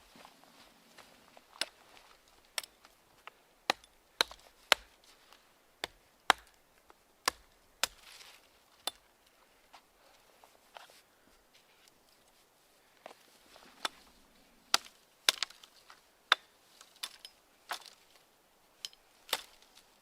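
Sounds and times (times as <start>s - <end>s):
wood being chopped: 3.7s - 5.0s, 5.8s - 6.6s, 7.2s - 8.2s, 14.7s - 15.7s, 16.3s - 18.0s, 19.3s - 19.6s.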